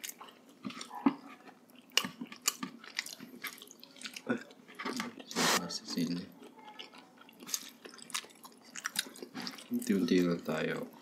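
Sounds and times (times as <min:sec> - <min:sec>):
chewing and biting food: 0:00.0 - 0:05.4, 0:06.3 - 0:10.4.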